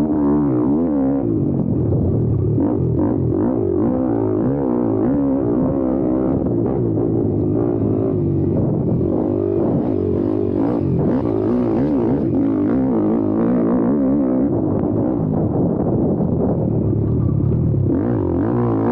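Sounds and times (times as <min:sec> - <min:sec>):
motorbike engine revving: 0:00.0 - 0:18.9.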